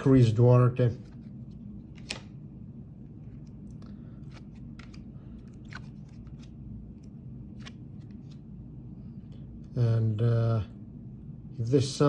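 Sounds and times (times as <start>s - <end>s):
steady low hum: 0.0s - 12.0s
trading cards clicking and scraping: 3.3s - 8.4s.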